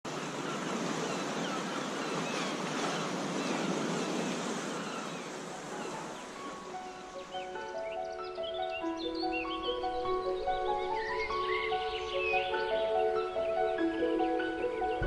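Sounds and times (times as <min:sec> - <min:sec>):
water rushing: 0:00.0 - 0:07.6.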